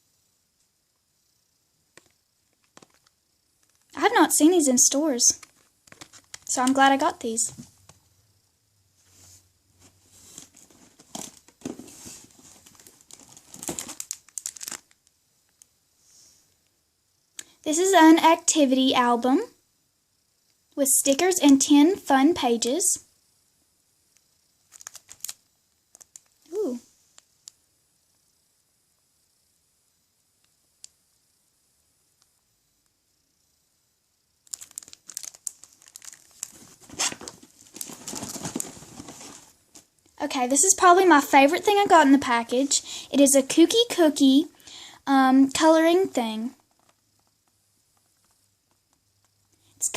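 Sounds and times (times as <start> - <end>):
packaging crinkling and rustling: 2.0 - 3.9, 5.4 - 6.8, 10.2 - 15.7, 24.7 - 26.4, 34.4 - 39.9, 46.6 - 47.3.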